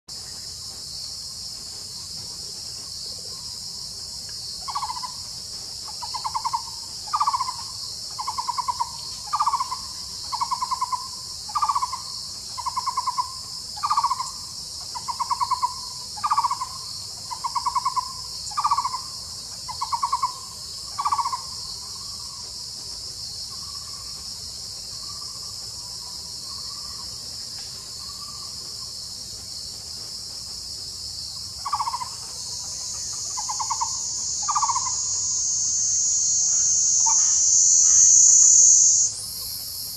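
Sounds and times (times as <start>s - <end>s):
high-pitched insect drone: 1.7s - 27.2s, 31.2s - 39.9s
bird rattling call: 33.3s - 35.0s.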